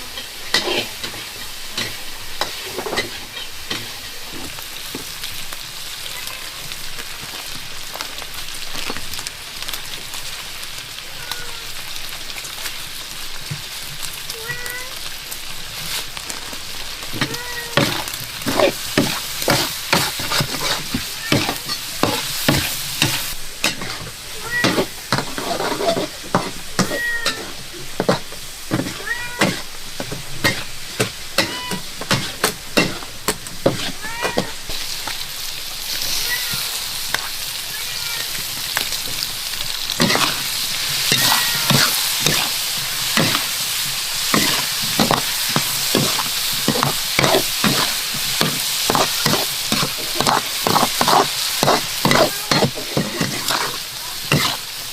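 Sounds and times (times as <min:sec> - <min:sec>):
metal spatula scraping a pan: 0:00.0 - 0:04.6, 0:17.2 - 0:34.9, 0:39.8 - 0:54.7
food sizzling in a pan: 0:00.0 - 0:54.9.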